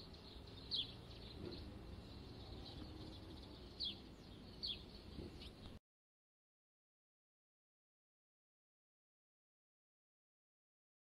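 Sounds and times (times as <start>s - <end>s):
outdoor background noise: 0.0s - 5.8s
small bird chirping faintly: 0.0s - 5.8s.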